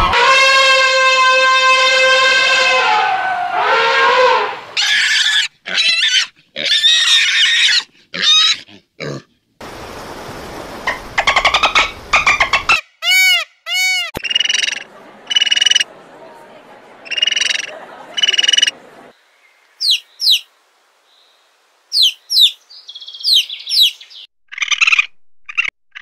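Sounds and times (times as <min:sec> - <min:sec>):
elephant trumpeting: 0:00.0 - 0:08.7.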